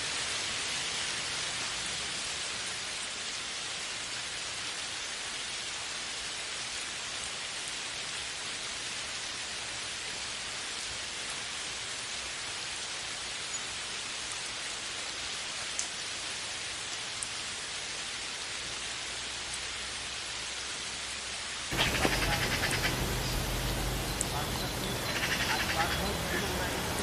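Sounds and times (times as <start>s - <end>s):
steady rain: 0.0s - 27.0s.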